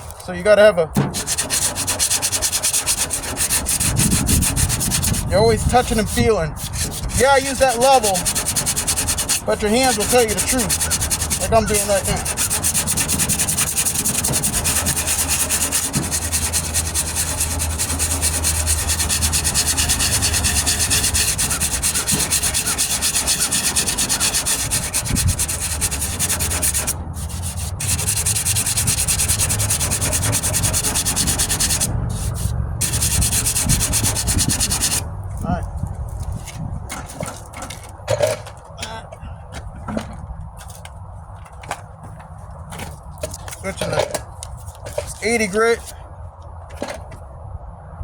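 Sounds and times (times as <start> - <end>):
sandpaper rasping on filler: 1.0 - 35.1.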